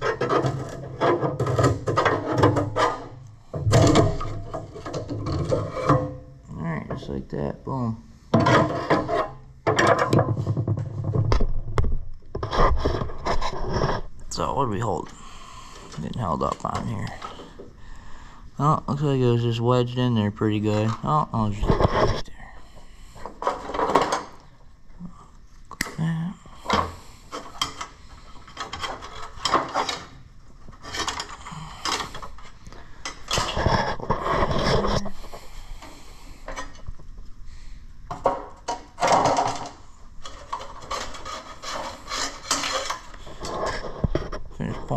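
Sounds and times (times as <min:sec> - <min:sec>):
wiring scraping and rubbing: 0:00.0 - 0:07.2, 0:08.4 - 0:11.3, 0:12.3 - 0:17.6, 0:18.6 - 0:22.5, 0:26.6 - 0:37.4, 0:38.5 - 0:44.9
hands pulling wiring loose: 0:26.7 - 0:35.9, 0:38.1 - 0:44.4.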